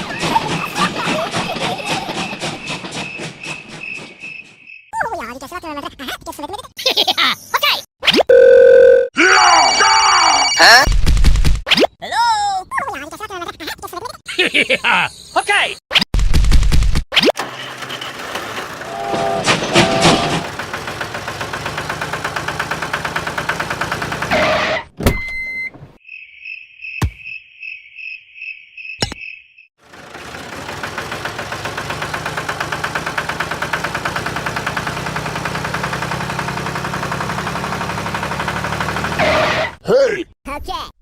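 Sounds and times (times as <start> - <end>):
small motor chugging: 17.4 - 24.5, 29.8 - 39.4.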